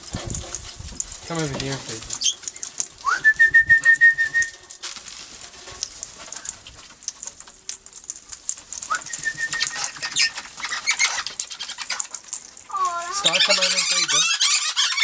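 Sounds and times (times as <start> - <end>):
clicks and rustles: 0.0 - 15.0
wing flutters: 8.6 - 15.0.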